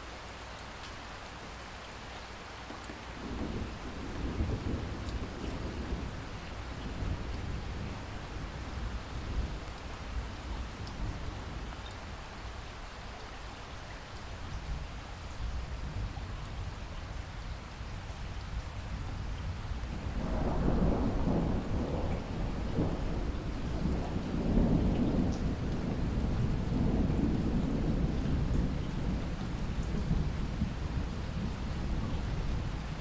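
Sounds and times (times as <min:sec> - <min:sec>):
steady rain: 0:00.0 - 0:33.0
thunder rumbling: 0:03.2 - 0:09.6, 0:19.5 - 0:33.0.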